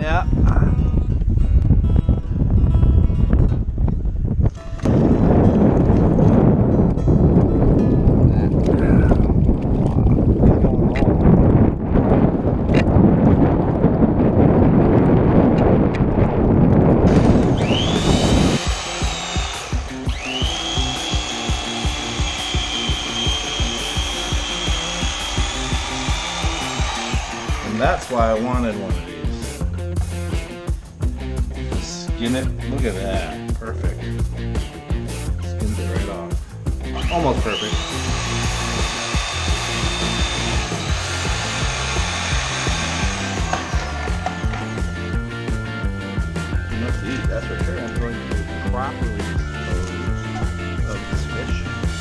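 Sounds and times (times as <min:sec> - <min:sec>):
wind noise: 0:00.0 - 0:52.0
electric knife motor whining: 0:17.1 - 0:28.2, 0:37.0 - 0:45.2
background music with steady beat: 0:17.1 - 0:52.0.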